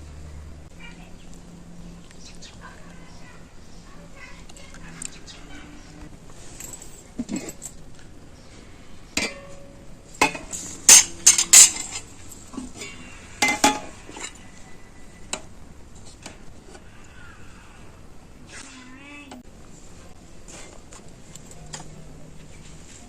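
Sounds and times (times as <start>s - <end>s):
pots and utensils clinking: 5.9s - 7.8s, 9.2s - 14.6s.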